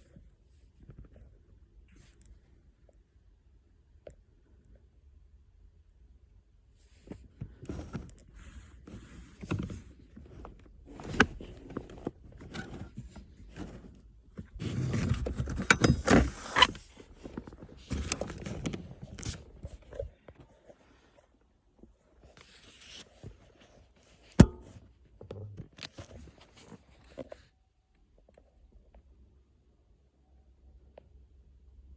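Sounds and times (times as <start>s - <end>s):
hands working with tools: 14.7s - 16.8s.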